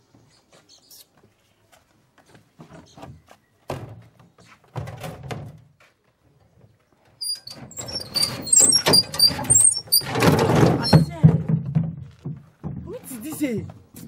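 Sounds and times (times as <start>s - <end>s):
high squeaks: 7.2s - 11.3s
knocks and thuds: 7.8s - 13.5s.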